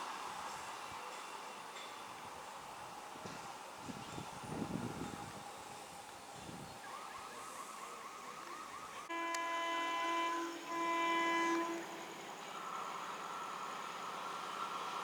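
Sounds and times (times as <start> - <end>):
train horn blasts: 9.1 - 12.2.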